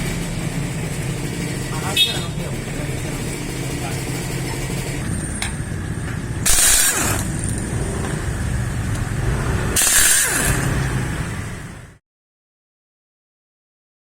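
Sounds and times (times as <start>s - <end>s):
workshop hum: 0.0s - 12.0s
impact wrench rattling: 6.4s - 7.7s, 9.8s - 10.8s.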